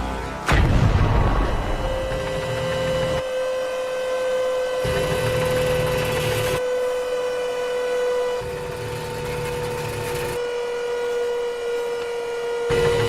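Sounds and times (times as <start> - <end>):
steady electronic drone: 0.0 - 6.6.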